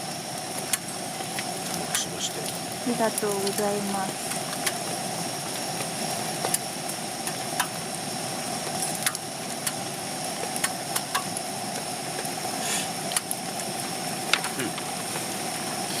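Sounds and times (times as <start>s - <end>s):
gas stove burner roaring: 0.0s - 16.0s
sharp ticks: 9.0s - 9.8s, 10.6s - 11.4s.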